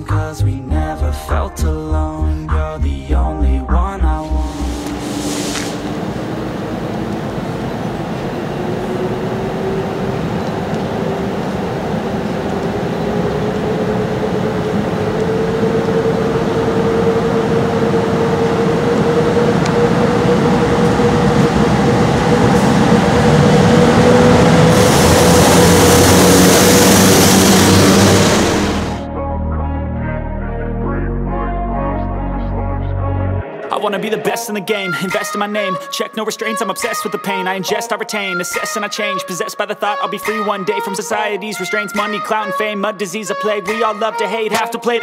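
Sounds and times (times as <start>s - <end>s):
train rumble: 4.3s - 29.1s
bright hiss: 4.4s - 6.5s
electric locomotive motor whine: 4.4s - 29.0s.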